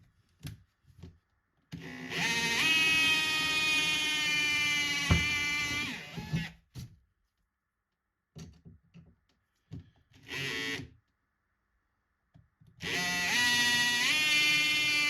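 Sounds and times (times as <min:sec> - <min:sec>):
power drill spinning: 0:01.8 - 0:06.5, 0:10.2 - 0:10.8, 0:12.8 - 0:15.0.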